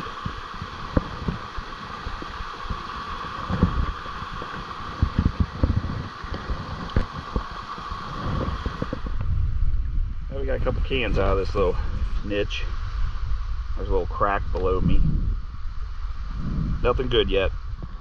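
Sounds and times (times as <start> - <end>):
waterfall rushing: 0.0 - 9.2
low thumps and sloshing: 0.0 - 13.8.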